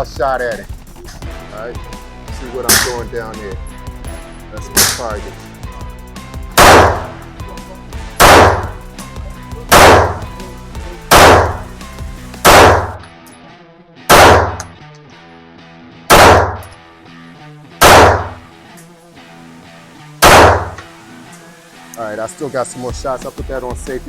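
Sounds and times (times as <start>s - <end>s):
background music: 0.0s - 24.0s
pistol shots: 2.7s - 3.0s, 6.6s - 7.2s, 8.2s - 8.8s, 9.7s - 10.3s, 11.1s - 11.7s, 12.4s - 13.0s, 14.1s - 14.8s, 16.1s - 16.8s, 17.8s - 18.4s, 20.2s - 20.9s.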